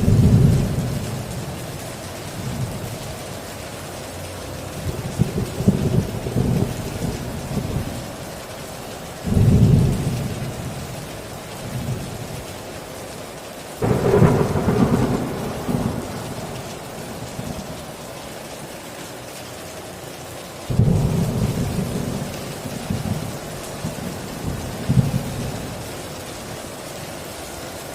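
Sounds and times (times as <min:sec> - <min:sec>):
thunderclaps rumbling: 0:00.0 - 0:03.0, 0:04.7 - 0:08.4, 0:09.2 - 0:12.4, 0:13.8 - 0:18.2, 0:20.7 - 0:26.7
heavy rain: 0:00.0 - 0:27.9.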